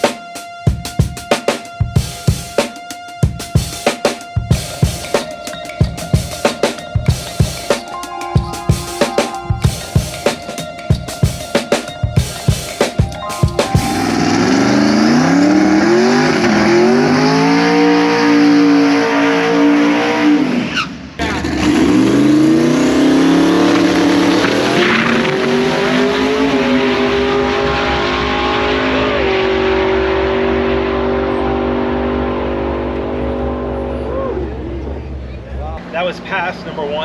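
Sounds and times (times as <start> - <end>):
engine at full throttle: 13.8 - 35.1.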